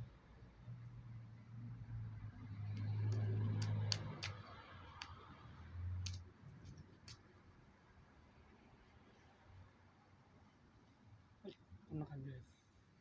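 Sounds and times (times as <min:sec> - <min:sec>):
sharp clicks: 0:02.7 - 0:05.2, 0:06.0 - 0:06.2.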